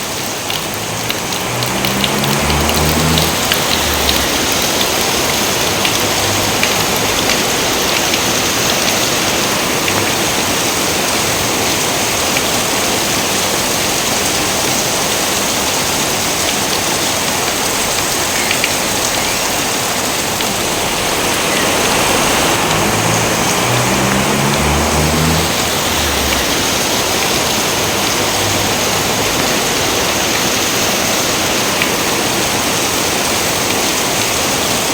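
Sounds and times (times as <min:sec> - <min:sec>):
steady rain hiss: 0:00.0 - 0:34.9
low rumble: 0:20.0 - 0:27.1.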